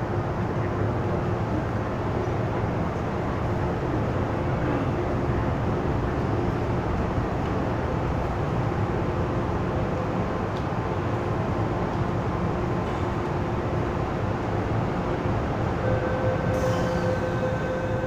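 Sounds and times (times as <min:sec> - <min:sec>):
electric train humming: 0:10.9 - 0:18.0.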